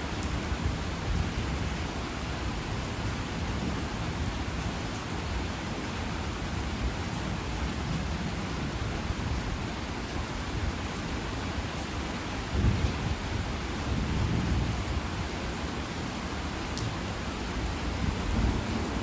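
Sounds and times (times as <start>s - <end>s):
heavy rain falling: 0.0s - 19.0s
distant thunder rumbling: 17.9s - 19.0s.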